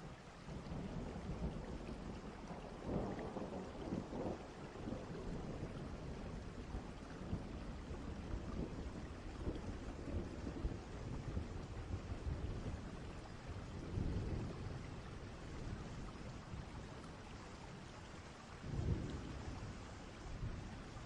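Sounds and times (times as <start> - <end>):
steady rain: 0.0 - 21.0
distant thunder rumbling: 18.7 - 20.7.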